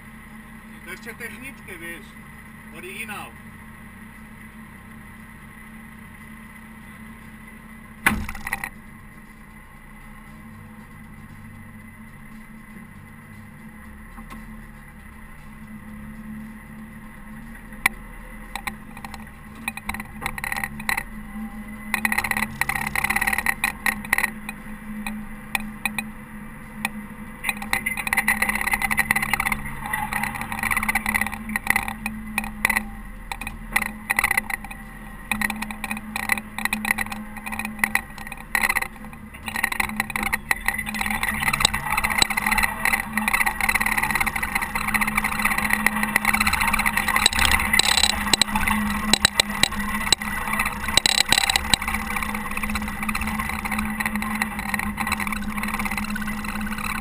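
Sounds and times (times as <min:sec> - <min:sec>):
diesel engine running: 0:00.0 - 0:57.0
clicks knocks and rattles: 0:08.1 - 0:08.8, 0:17.8 - 0:21.2, 0:21.9 - 0:26.1, 0:27.4 - 0:57.0.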